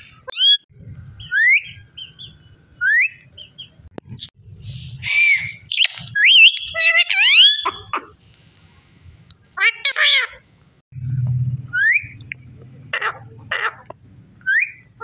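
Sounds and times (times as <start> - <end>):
parrot squawk: 5.0 - 8.1, 9.6 - 10.4, 12.9 - 14.9
parrot whistling: 5.1 - 7.8, 14.4 - 14.9.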